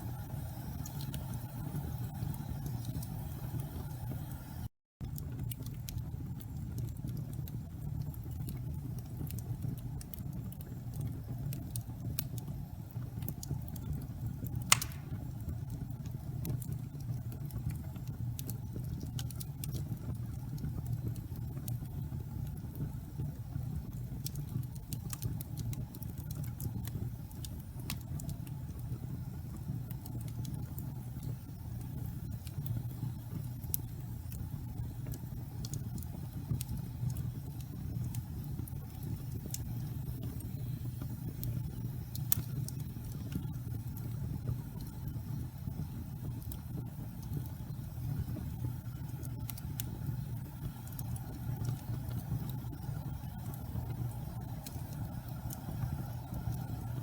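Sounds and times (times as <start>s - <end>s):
fire rumbling: 0.0s - 57.0s
wood crackling: 14.5s - 15.2s
loud pop of burning wood: 14.7s - 15.3s.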